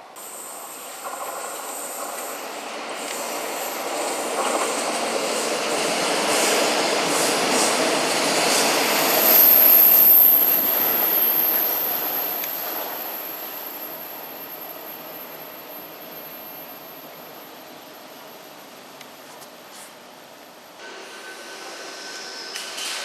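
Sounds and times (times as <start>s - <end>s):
train rolling on track: 0.0s - 23.0s
high-pitched wheel squeal: 8.4s - 18.4s.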